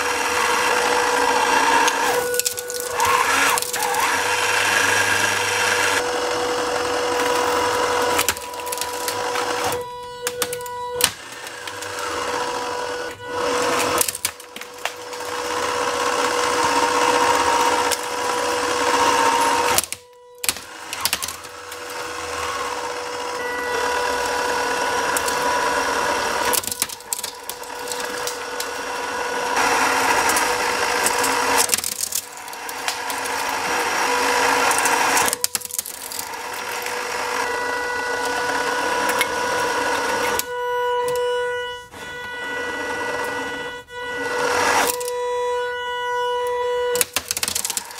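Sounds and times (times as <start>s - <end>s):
plastic crackling in shredder: 0.0s - 47.9s
shredder motor whine: 0.0s - 47.9s.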